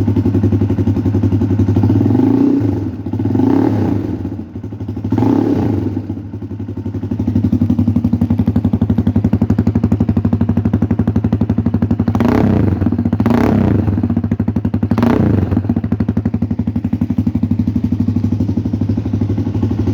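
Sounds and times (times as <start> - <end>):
motorcycle engine idling: 0.0 - 19.9
motorcycle engine revving: 0.0 - 19.9.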